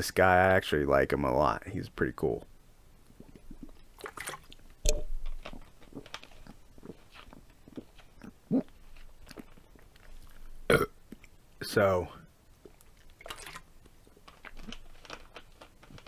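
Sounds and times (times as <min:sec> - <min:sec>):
person chewing: 0:04.9 - 0:11.4.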